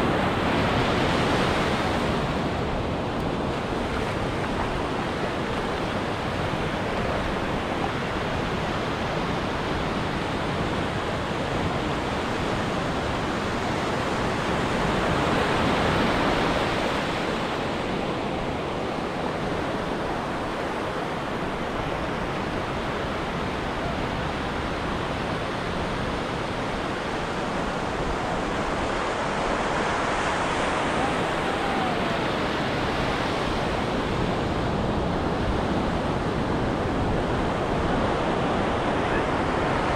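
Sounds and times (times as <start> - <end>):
ocean surf washing onto beach: 0.0 - 39.9.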